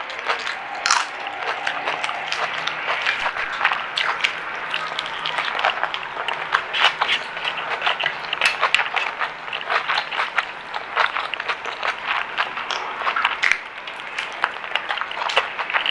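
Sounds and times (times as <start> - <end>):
chewing crunchy food: 0.0 - 15.9.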